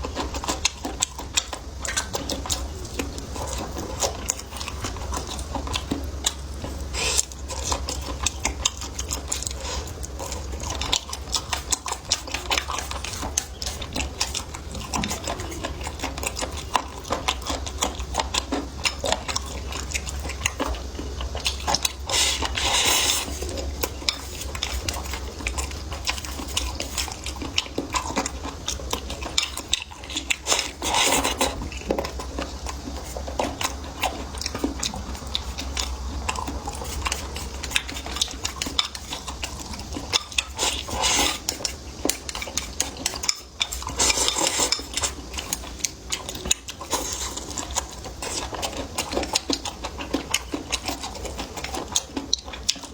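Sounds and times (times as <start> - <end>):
biting and chewing: 0.0 - 52.9
steady low hum: 0.0 - 52.9
utensils clicking against dishes: 40.1 - 49.7.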